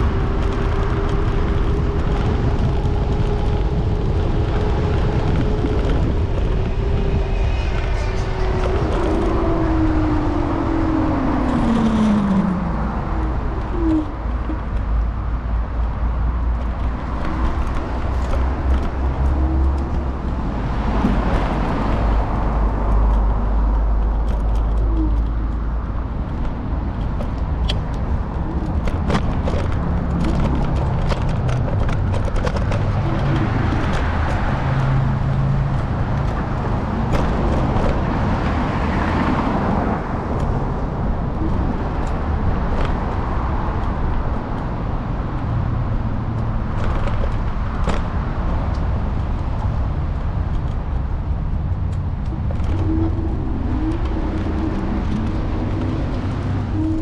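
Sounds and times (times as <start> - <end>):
cars passing: 0.0 - 57.0
steady low rumble: 0.0 - 57.0.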